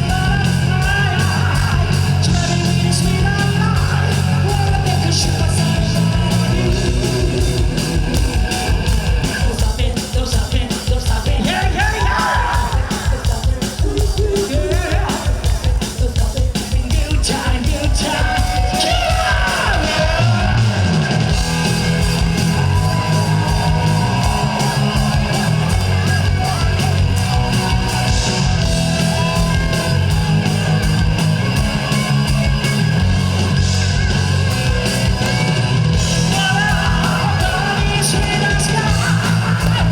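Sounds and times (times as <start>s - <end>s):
person singing and yelling: 0.0s - 8.0s, 9.2s - 21.3s, 22.4s - 29.7s, 36.2s - 39.9s
fast driving drums: 0.0s - 39.9s
rock band playing: 0.0s - 39.9s.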